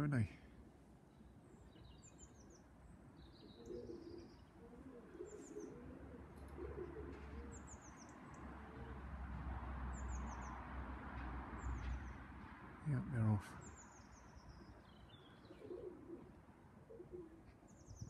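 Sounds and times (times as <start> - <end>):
pigeons cooing: 3.4 - 9.2, 15.4 - 18.0.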